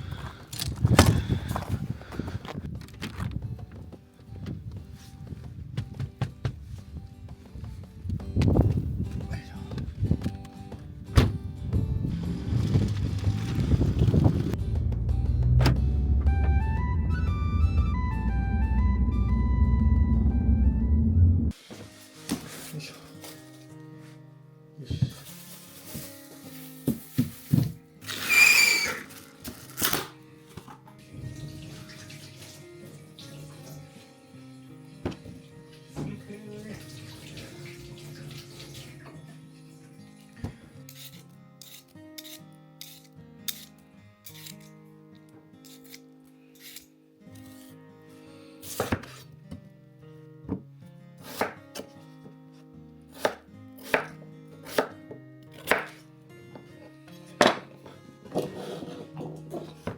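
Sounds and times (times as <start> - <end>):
background music: 0.0 - 59.9
knife chopping on cutting board: 48.7 - 49.2, 51.2 - 51.9, 53.2 - 55.0, 55.6 - 56.0.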